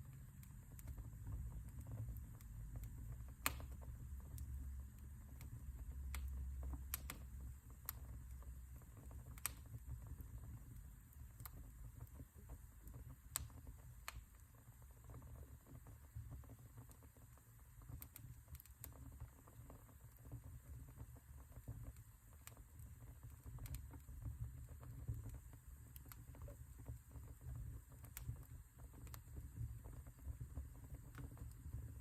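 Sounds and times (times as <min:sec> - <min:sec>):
wood fire crackling: 0:00.0 - 0:32.0.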